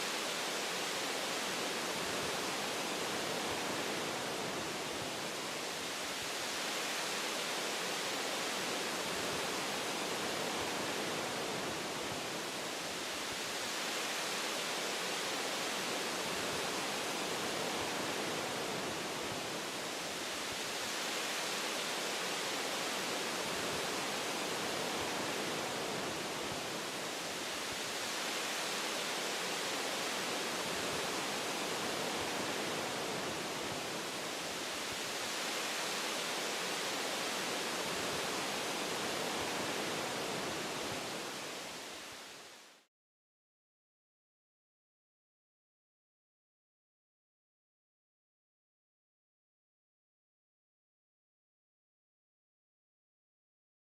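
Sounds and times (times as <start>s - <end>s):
wind through tree branches: 0.0s - 42.9s.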